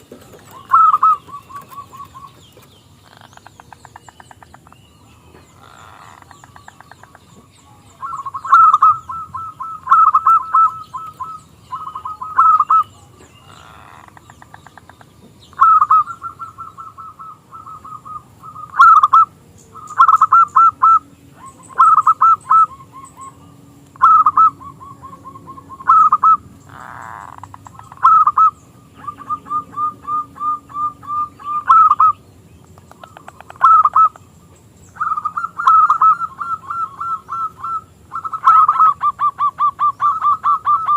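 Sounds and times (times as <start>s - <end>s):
dove cooing: 0.0s - 4.8s, 5.4s - 32.2s, 32.8s - 34.2s, 35.0s - 40.9s.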